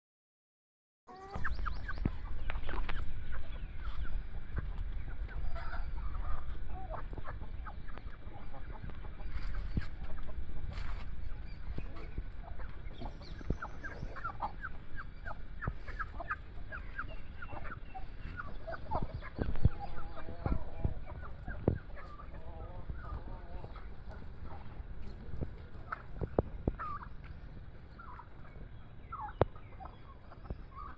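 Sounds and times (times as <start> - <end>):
chickens clucking: 1.1 - 30.9
chicks chirping: 1.1 - 30.9
steady low rumble: 1.4 - 30.9.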